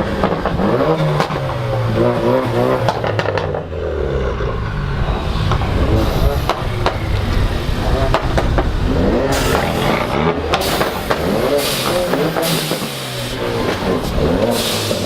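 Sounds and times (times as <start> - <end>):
car engine running: 0.0 - 15.0
people chattering: 4.5 - 15.0.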